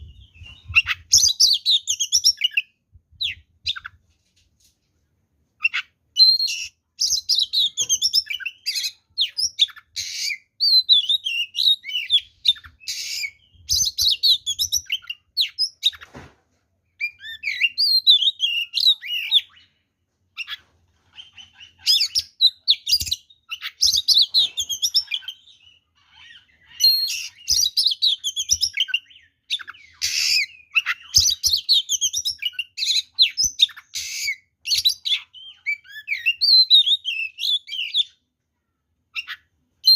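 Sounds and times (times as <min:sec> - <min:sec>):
songbird singing whistles and trills: 0:00.0 - 0:04.0, 0:05.6 - 0:16.0, 0:16.9 - 0:19.8, 0:20.4 - 0:38.2, 0:39.1 - 0:39.9.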